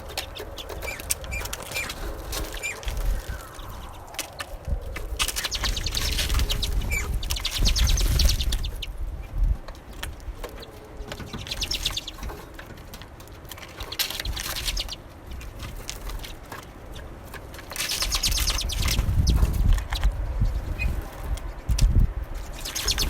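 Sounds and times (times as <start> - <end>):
low rumble: 0.0 - 9.7
songbirds chattering: 0.0 - 23.0.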